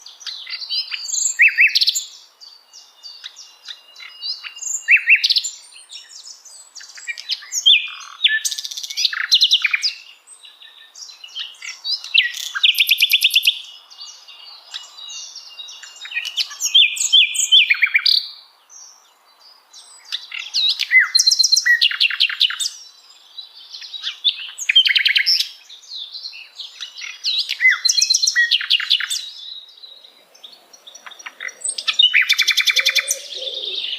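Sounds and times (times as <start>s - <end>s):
bird chirps and trills: 19.8s - 33.9s.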